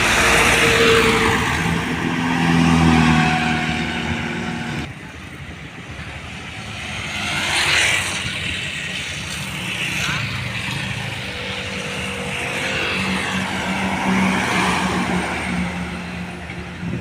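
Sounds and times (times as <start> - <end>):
heavy vehicles passing: 0.0 - 17.0.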